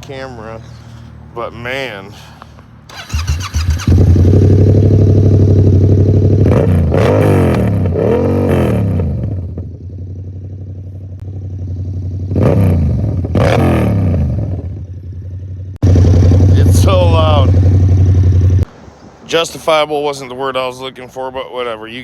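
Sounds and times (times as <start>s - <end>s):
motorcycle engine revving: 2.9s - 18.7s.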